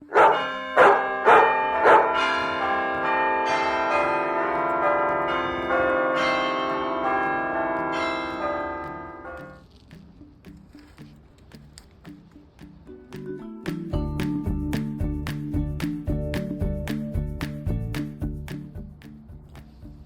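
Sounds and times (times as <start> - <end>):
bell chimes: 0.0 - 9.6.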